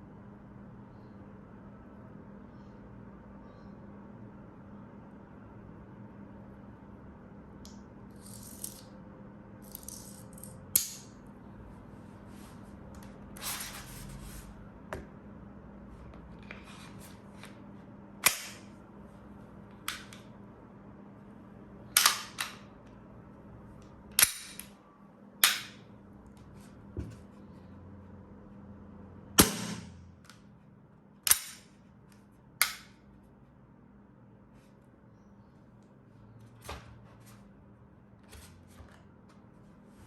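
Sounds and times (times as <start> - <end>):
airsoft pistol shots: 29.4 - 30.0.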